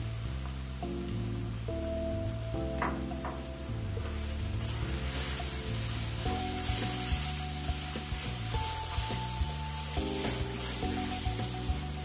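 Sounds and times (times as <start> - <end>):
background music with bass: 0.0 - 12.0
food sizzling in a pan: 0.0 - 12.0
wooden spatula stirring: 4.0 - 12.0.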